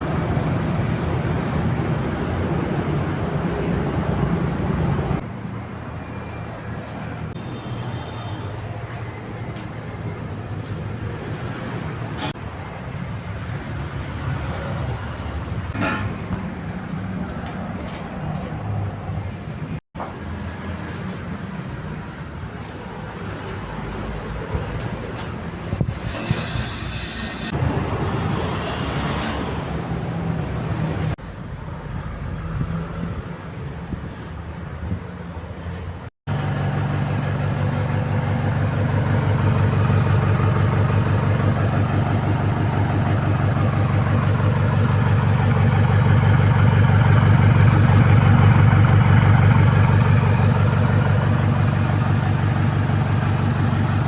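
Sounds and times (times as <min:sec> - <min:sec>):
workshop noise: 0:24.5 - 0:27.7
diesel engine exhaust note: 0:36.3 - 0:54.0.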